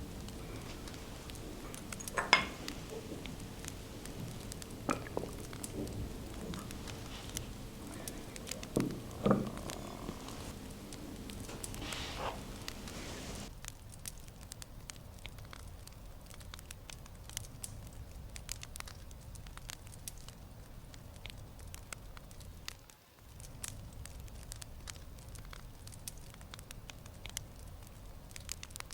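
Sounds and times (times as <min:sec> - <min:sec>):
steady tones: 0:00.0 - 0:13.5
wood fire crackling and popping: 0:00.0 - 0:28.9.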